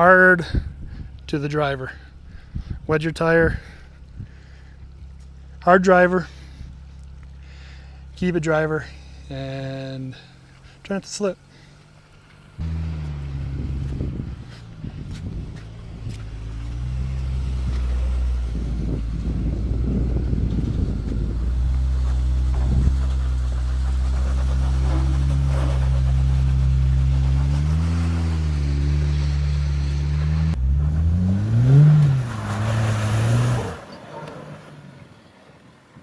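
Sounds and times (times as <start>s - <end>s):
off-road vehicle engine revving: 0.0s - 35.1s.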